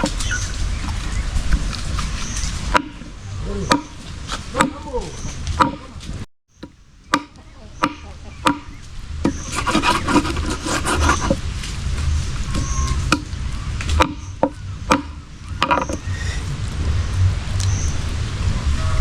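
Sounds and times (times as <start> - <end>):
knife chopping on wooden board: 7.1 - 8.7, 9.3 - 11.4, 13.9 - 15.8
scraping and rubbing: 9.2 - 17.0.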